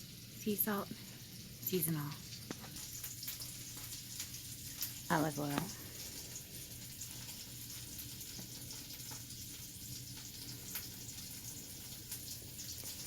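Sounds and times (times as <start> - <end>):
oil and butter sizzling in a pan: 0.0 - 13.0
small crackles and pops: 0.0 - 13.0.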